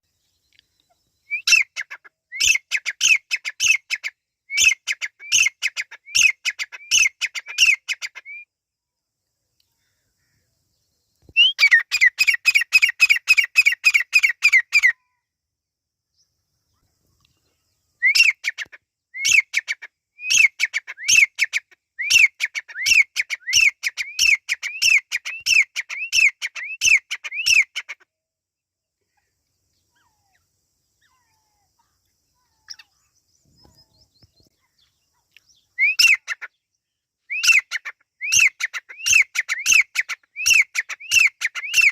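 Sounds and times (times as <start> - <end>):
francolin calling: 0.1 - 8.5, 9.6 - 15.3, 16.1 - 28.1, 29.1 - 41.9.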